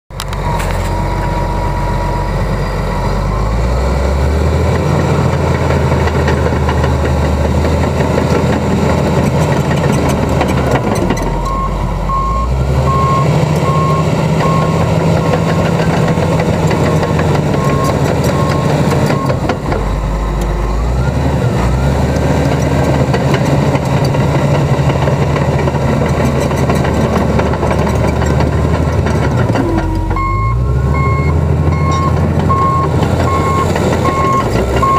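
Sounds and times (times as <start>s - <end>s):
bulldozer diesel engine running: 0.1s - 34.9s
reversing alarm beeping: 11.2s - 16.0s, 16.8s - 21.2s, 29.6s - 34.9s.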